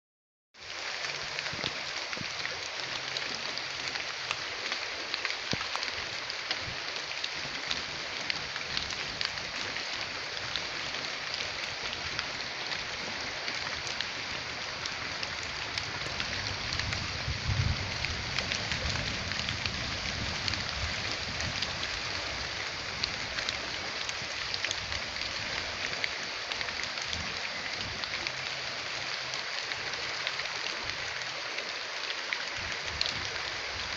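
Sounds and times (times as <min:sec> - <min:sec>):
heavy rain pattering: 0:00.6 - 0:33.9
low rumble: 0:15.8 - 0:22.4.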